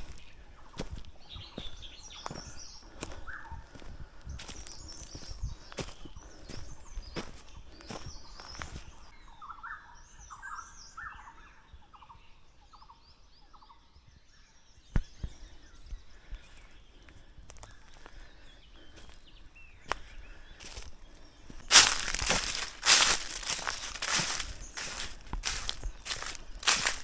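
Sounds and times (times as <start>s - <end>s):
crunching footsteps on forest floor: 0.0s - 9.1s, 15.0s - 27.0s
forest birds calling: 0.0s - 27.0s
high bird chirps: 21.5s - 27.0s.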